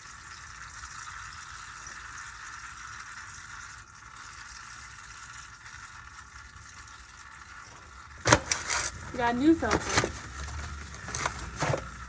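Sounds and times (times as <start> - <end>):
oil trickling into a pan: 0.0 - 12.0.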